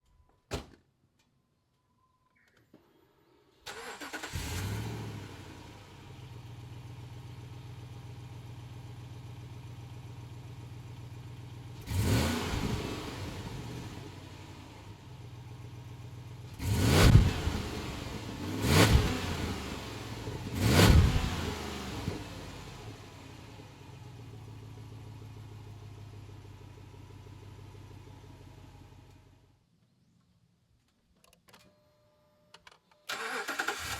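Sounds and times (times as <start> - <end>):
car engine starting and idling: 3.6 - 29.5, 33.0 - 33.9
engine revving: 3.7 - 6.2, 11.8 - 14.2, 16.5 - 23.5, 33.1 - 33.9.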